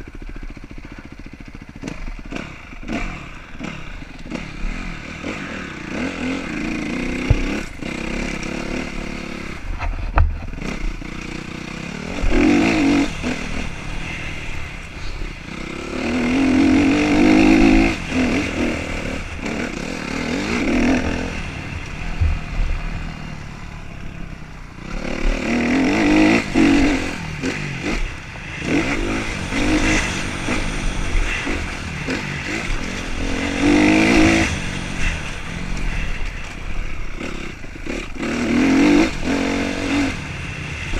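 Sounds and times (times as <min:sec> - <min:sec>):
motorcycle engines revving: 0:00.0 - 0:40.9.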